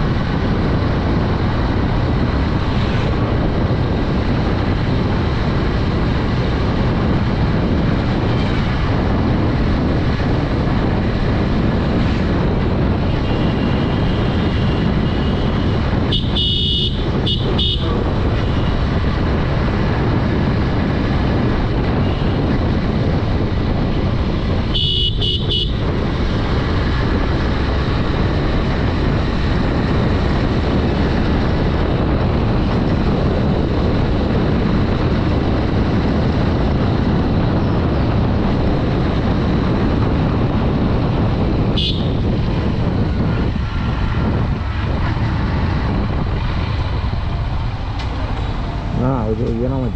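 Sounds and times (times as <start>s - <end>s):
wind rush on microphone: 0.0s - 49.9s
horn beeps: 16.1s - 18.0s, 24.8s - 25.8s, 41.8s - 42.2s.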